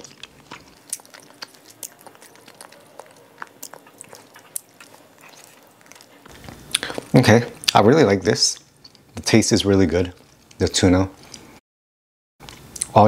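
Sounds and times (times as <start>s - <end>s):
person chewing food: 0.0s - 7.8s.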